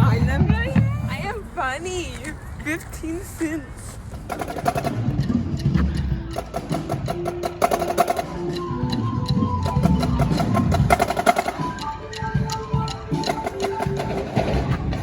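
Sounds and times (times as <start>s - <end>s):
clicky percussion beat: 4.1s - 15.0s
melody of held notes: 4.9s - 15.0s.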